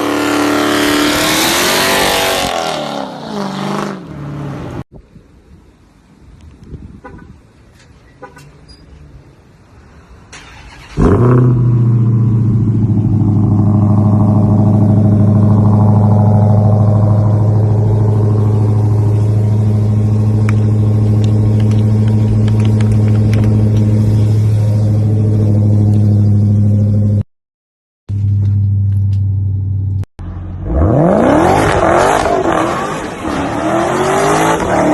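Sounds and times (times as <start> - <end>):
car engine starting and idling: 10.0 - 27.2.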